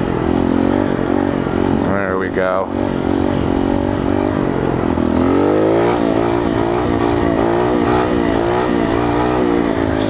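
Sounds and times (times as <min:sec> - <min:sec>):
pit bike engine revving: 0:00.0 - 0:10.0.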